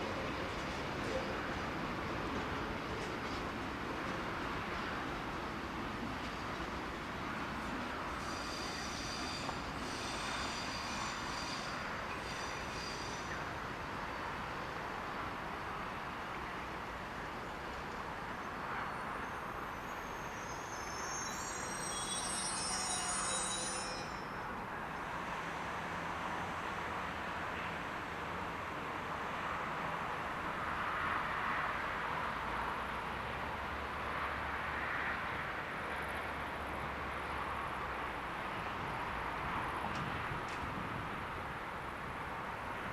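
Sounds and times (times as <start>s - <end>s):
train rumbling past: 0.0s - 42.9s
train wheels squealing: 7.8s - 14.6s, 18.4s - 25.0s.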